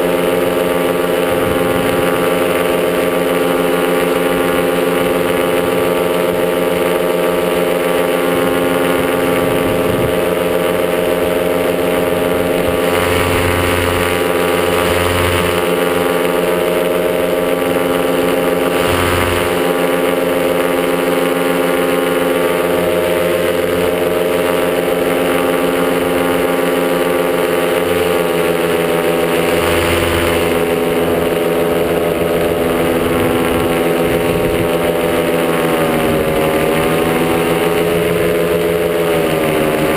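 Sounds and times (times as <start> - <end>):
wind buffeting microphone: 0.0 - 20.8, 28.8 - 39.1
two-stroke engine running: 0.0 - 39.9.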